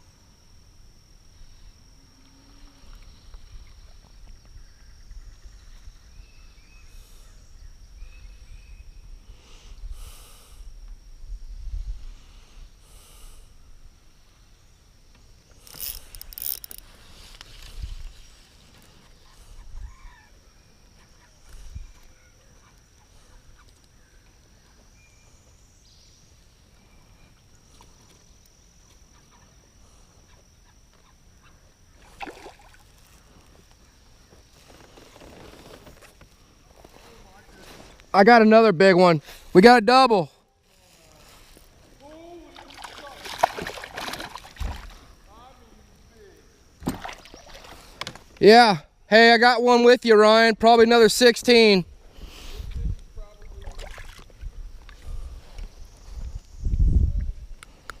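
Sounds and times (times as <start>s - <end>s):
wind rumbling on microphone: 10.7s - 12.8s, 16.0s - 18.4s, 51.8s - 58.0s
river ambience: 12.6s - 21.4s, 22.1s - 51.8s
faint animal calls: 19.0s - 25.2s
splash or knock: 42.7s - 45.0s, 46.8s - 47.7s.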